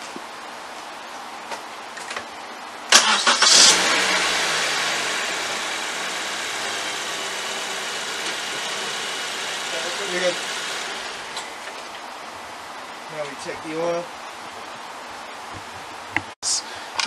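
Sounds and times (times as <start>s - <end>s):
starter cranking engine: 3.0s - 11.4s
car engine idling: 3.0s - 11.8s.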